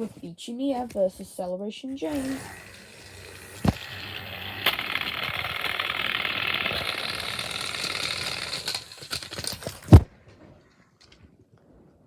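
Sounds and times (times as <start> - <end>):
toy train motors whirring: 2.0 - 10.1
clicks and rattles: 2.1 - 10.1.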